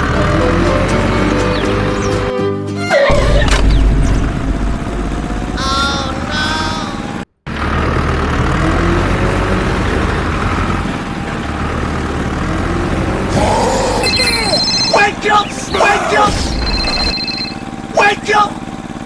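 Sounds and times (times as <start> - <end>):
vehicle engine rumbling: 0.0 - 19.0
short chirping calls: 0.3 - 2.4, 13.5 - 18.4.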